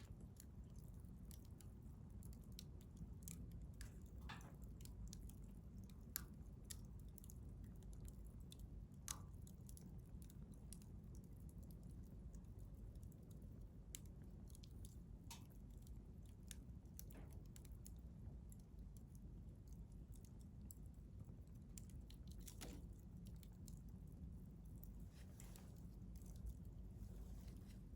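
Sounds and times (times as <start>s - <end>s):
low steady rumble: 0.0s - 27.9s
wood fire crackling: 0.0s - 27.9s.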